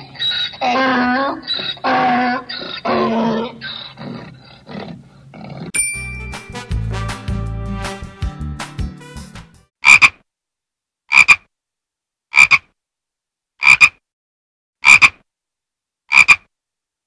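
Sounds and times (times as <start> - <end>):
frog croaking: 9.8 - 10.2, 11.1 - 11.5, 12.3 - 12.7, 13.6 - 14.0, 14.8 - 15.2, 16.1 - 16.5.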